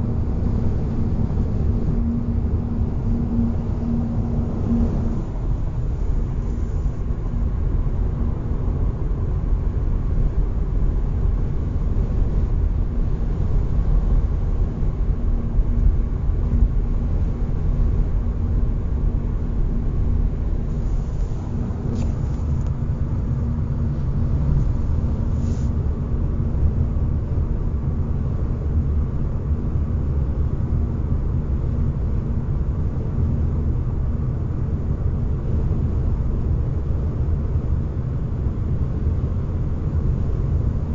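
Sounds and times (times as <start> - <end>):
car road noise hum: 0.0 - 28.0.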